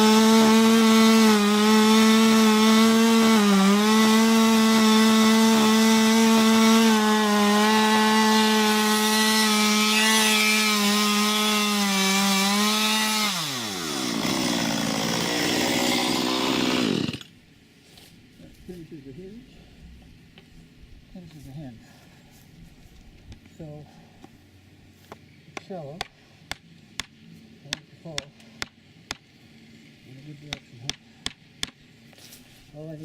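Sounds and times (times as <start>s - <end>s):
chainsaw cutting wood: 0.0s - 17.4s.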